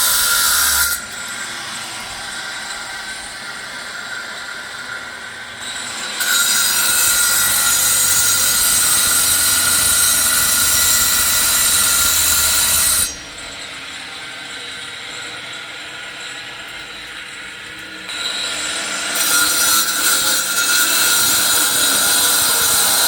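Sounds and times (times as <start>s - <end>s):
workshop noise: 5.6s - 14.6s.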